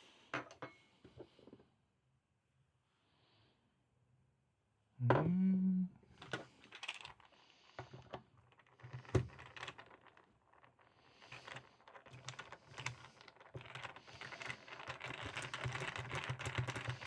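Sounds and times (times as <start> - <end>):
sharp clicks and light clatters: 6.2 - 17.0.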